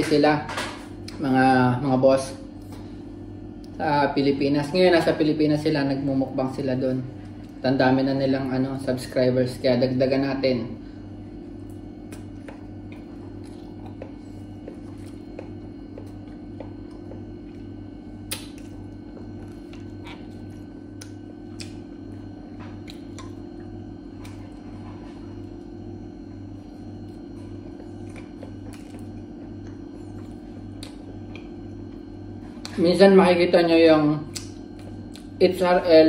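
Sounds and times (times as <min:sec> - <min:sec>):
pulsing low hum: 0:00.0 - 0:36.0
man chewing pizza: 0:10.8 - 0:32.8, 0:34.3 - 0:35.5
small mouth clicks: 0:18.3 - 0:18.8, 0:20.9 - 0:21.8, 0:22.8 - 0:23.4, 0:34.3 - 0:35.3.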